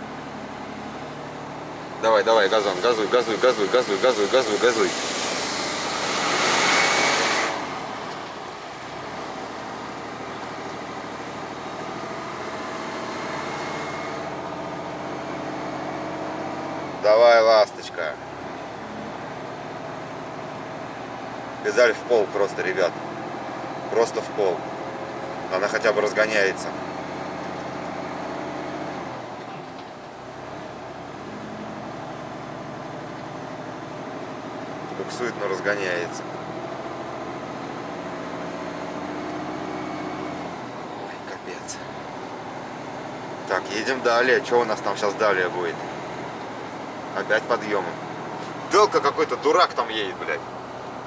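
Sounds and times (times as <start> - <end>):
truck engine under load: 0.0 - 51.0
loud hiss: 2.6 - 7.7.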